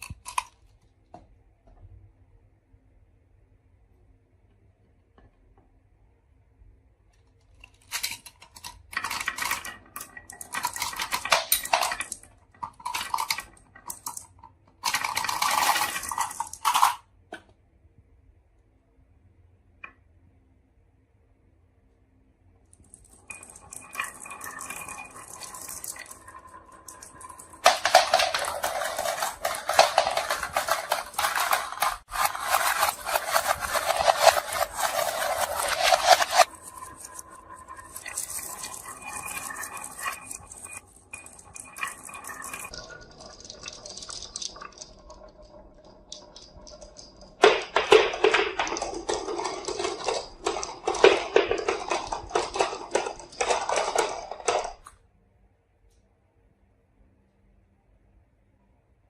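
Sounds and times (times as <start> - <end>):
marbles rattling down wooden run: 7.9 - 17.0, 22.9 - 54.9.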